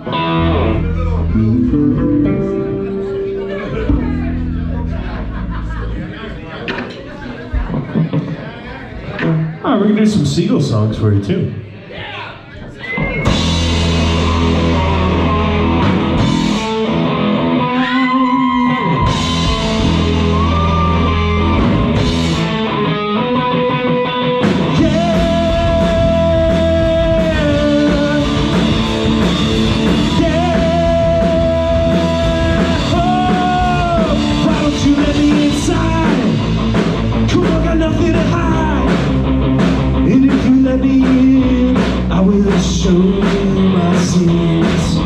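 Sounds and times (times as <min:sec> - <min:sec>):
electric guitar lines: 0:00.0 - 0:05.8, 0:13.0 - 0:40.1
live rock band playing: 0:00.0 - 0:06.1, 0:12.9 - 0:45.0.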